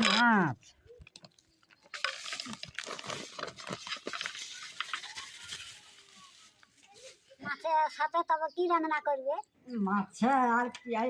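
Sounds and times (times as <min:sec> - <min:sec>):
rustling and crackling handling: 0:00.0 - 0:07.5.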